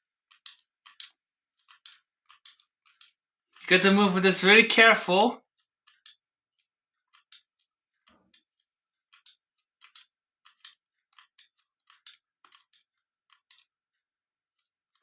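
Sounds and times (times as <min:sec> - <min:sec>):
wall clock clicking: 0:03.6 - 0:05.4.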